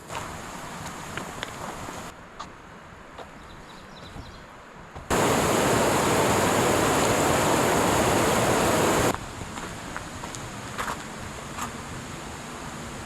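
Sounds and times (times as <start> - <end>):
rush of falling water: 0.0 - 2.1, 5.1 - 9.1
quiet hiss: 5.1 - 9.6.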